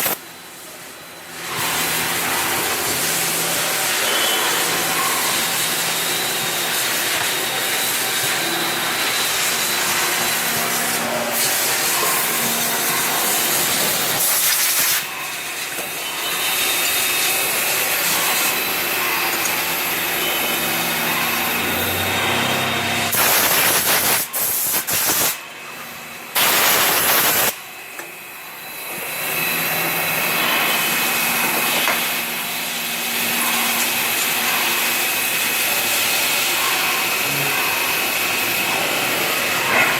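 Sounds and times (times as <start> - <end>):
faint machine whine: 0.0 - 23.8, 25.6 - 39.9
cnc machine hissing: 0.0 - 39.9
loud abrupt hissing blasts: 23.1 - 25.4, 26.4 - 27.6.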